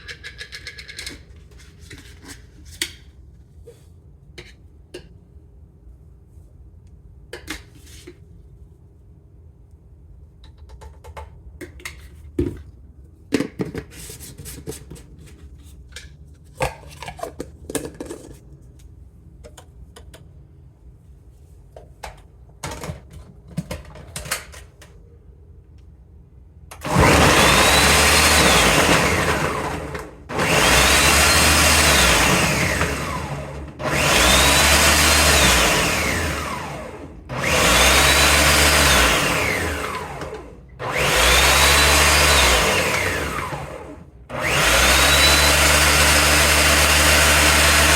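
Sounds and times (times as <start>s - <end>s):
small electric motor whining: 26.8s - 47.9s.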